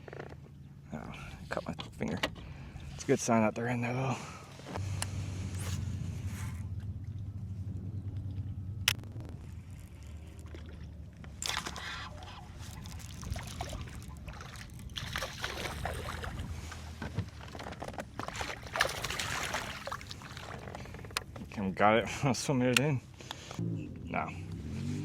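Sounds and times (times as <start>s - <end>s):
steady low rumble: 0.7s - 18.8s, 19.4s - 24.6s
water sloshing and splashing: 4.4s - 21.5s.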